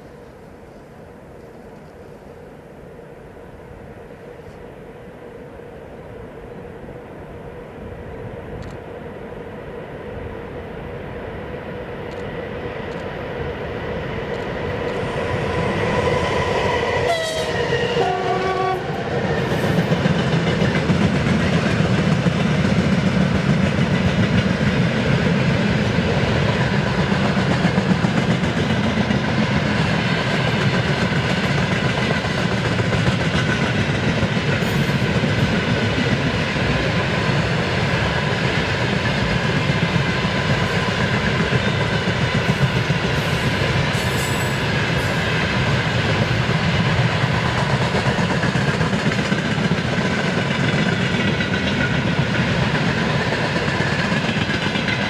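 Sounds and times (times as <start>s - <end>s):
train wagons rumbling and clacking: 12.0s - 55.0s
locomotive horn: 17.0s - 18.9s.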